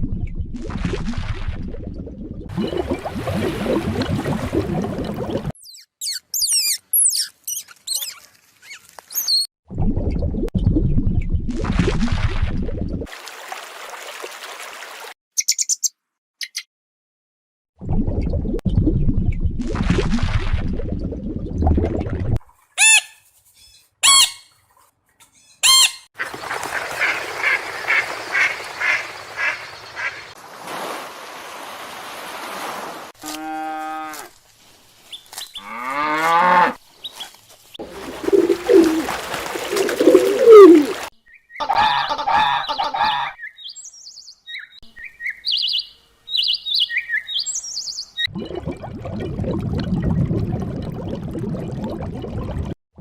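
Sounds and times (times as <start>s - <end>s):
high trilled bird chirps: 5.6s - 9.5s, 15.4s - 16.7s, 43.4s - 48.3s
bird calling: 25.2s - 30.4s, 37.0s - 48.3s.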